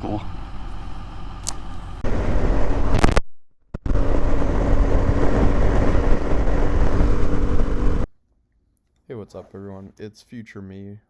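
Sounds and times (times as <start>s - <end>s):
motorcycle engine drone: 0.0s - 8.1s
static-like rushing noise: 1.4s - 8.1s.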